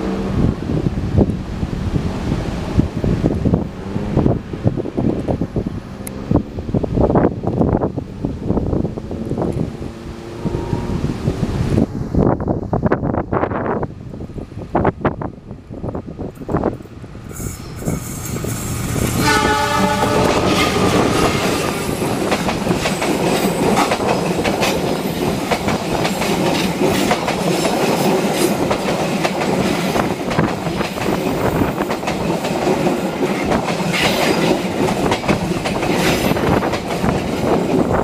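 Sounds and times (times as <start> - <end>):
passenger train rumbling past: 0.0 - 38.0
diesel locomotive horn: 9.0 - 11.5, 19.2 - 22.0
wheels clicking over rail joints: 17.6 - 38.0.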